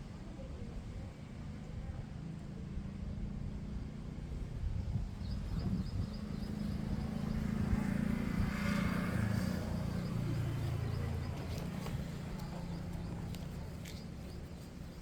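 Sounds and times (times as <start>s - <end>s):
vehicle engine running: 5.2s - 15.0s.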